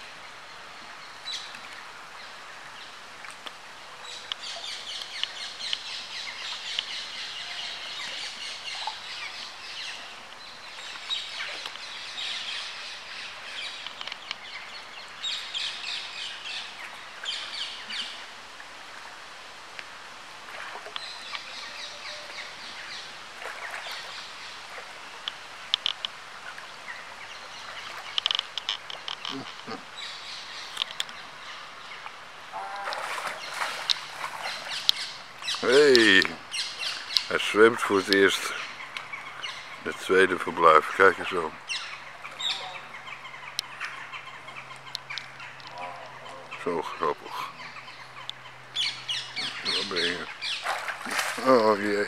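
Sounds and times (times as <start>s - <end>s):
outdoor background noise: 0.0s - 52.0s
small birds chirping: 25.3s - 52.0s.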